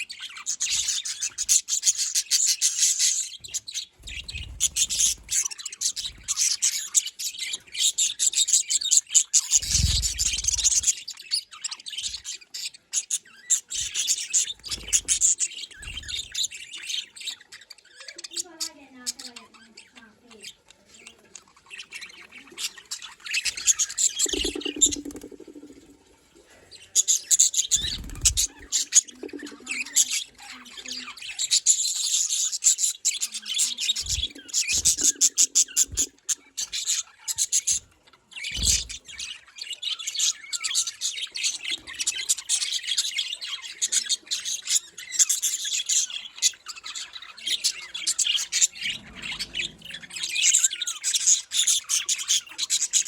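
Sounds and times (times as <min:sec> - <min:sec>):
budgerigars chattering: 0:00.0 - 0:53.0.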